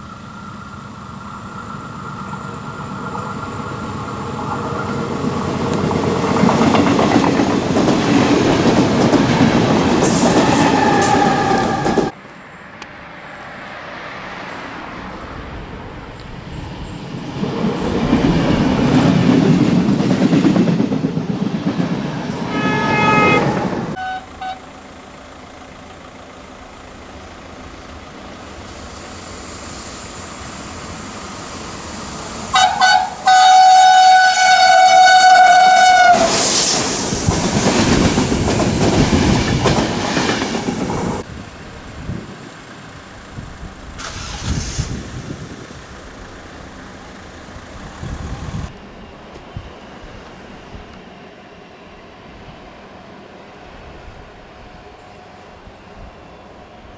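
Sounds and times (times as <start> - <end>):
trains rumbling past: 0.0 - 56.9
train horn: 10.4 - 12.1, 22.5 - 24.7, 32.5 - 36.4.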